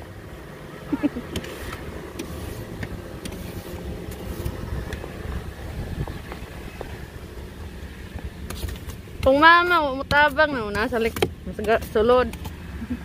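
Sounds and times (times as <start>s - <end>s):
car engine idling: 0.0s - 13.0s
scrapes and taps on car body: 1.3s - 5.1s, 5.9s - 7.0s, 8.1s - 12.6s.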